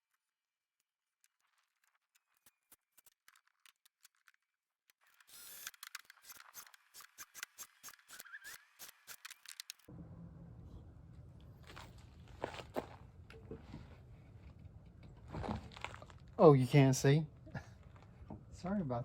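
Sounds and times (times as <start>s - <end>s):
low rumble: 9.9s - 16.4s.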